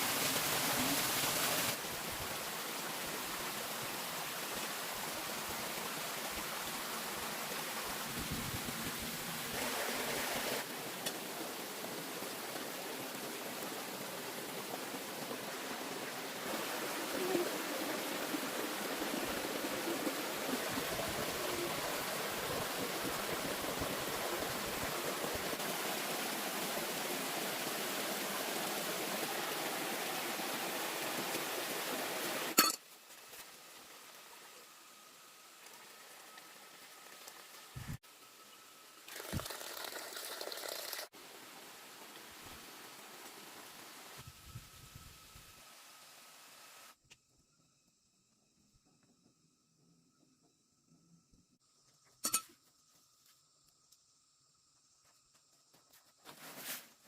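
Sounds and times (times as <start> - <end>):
flowing water rushing: 0.0 - 38.0.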